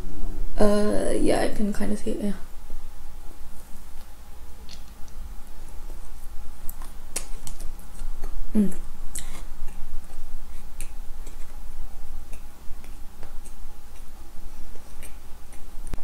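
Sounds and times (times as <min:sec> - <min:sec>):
chewing with wet mouth clicks: 0:06.6 - 0:11.6, 0:12.3 - 0:14.1, 0:14.7 - 0:16.0
person humming briefly: 0:08.5 - 0:09.3.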